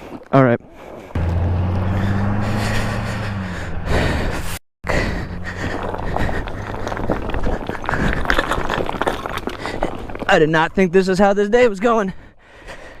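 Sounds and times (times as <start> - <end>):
vehicle engine humming: 1.2 - 8.0.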